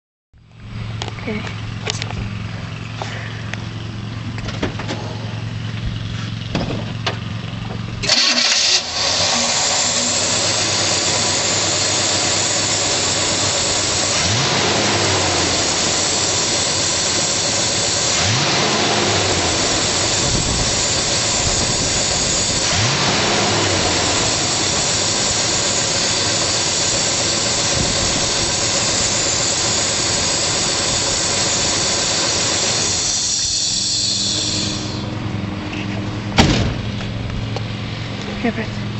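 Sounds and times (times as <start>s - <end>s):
low hum: 0.4s - 18.1s, 18.9s - 38.9s
car engine starting and revving: 0.5s - 38.9s.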